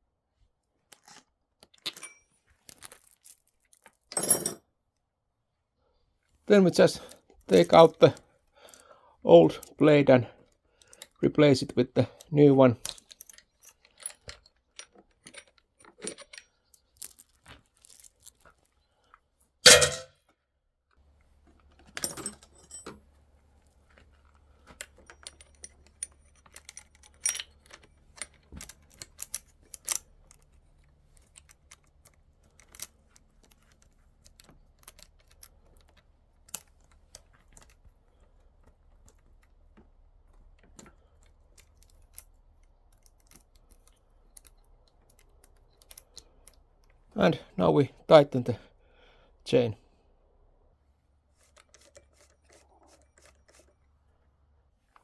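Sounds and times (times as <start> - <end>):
metallic clicks and clinks: 12.8 - 18.3, 19.7 - 20.1, 21.9 - 23.0, 24.7 - 30.5.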